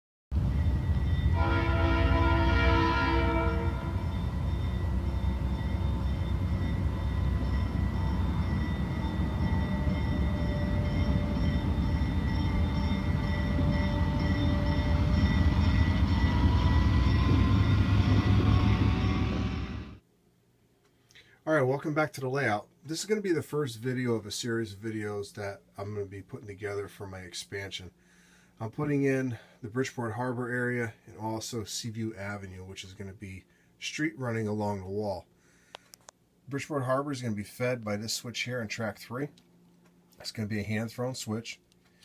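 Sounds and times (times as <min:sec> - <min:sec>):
train diesel engine running: 0:00.3 - 0:20.0
train horn: 0:00.4 - 0:20.0.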